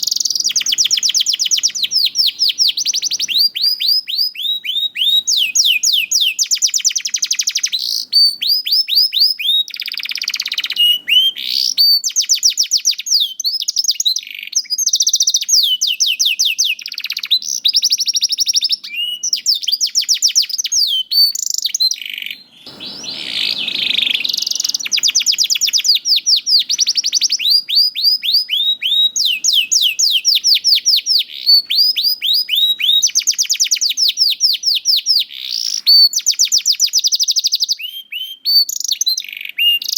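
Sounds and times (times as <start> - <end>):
canary singing trills: 0.0 - 39.9
brief rush of noise: 22.7 - 25.6.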